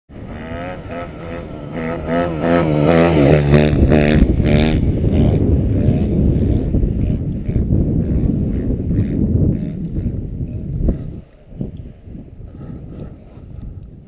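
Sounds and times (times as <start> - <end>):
motocross engine revving: 0.1 - 11.2.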